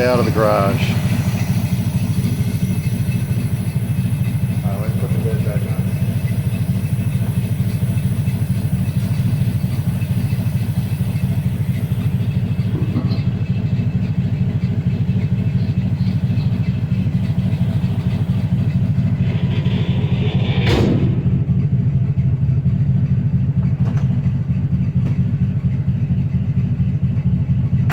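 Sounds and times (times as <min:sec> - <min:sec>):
car engine idling loudly: 0:00.0 - 0:27.9
clunk: 0:12.4 - 0:14.7, 0:15.3 - 0:22.0, 0:23.6 - 0:25.6.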